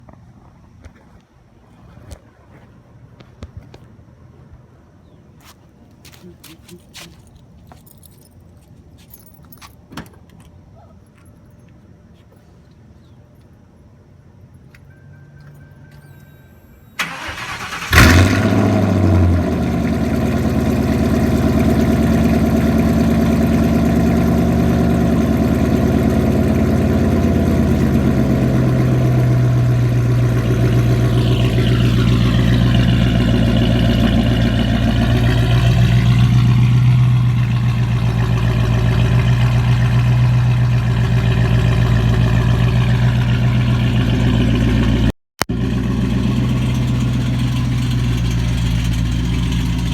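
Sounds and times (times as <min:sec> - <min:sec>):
car engine cranking and idling: 0:14.4 - 0:49.9.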